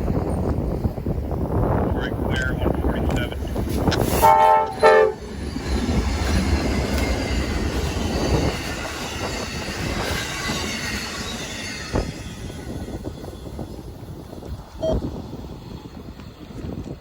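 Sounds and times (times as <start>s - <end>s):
train rumbling past: 0.0s - 17.0s
wind buffeting microphone: 0.0s - 17.0s
locomotive horn blasts: 4.1s - 5.2s
wheel squeal: 4.8s - 13.6s.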